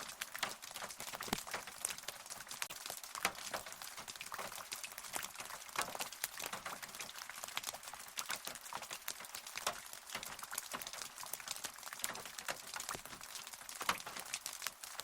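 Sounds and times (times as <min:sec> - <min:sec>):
rain hissing: 0:00.0 - 0:15.0
raindrops tapping: 0:00.0 - 0:15.0.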